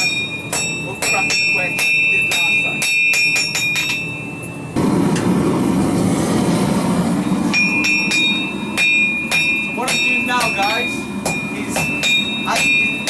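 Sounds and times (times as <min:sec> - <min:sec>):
hammer striking steel on anvil: 0:00.0 - 0:04.3, 0:07.4 - 0:13.0
steady rushing roar: 0:04.8 - 0:13.0.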